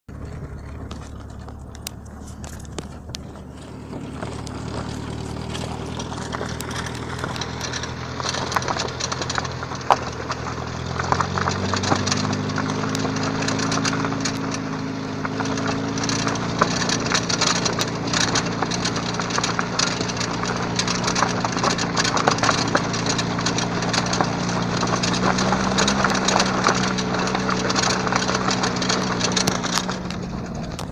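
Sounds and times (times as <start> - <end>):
car engine hum: 0.0 - 30.9
brake caliper knocking: 0.1 - 30.9.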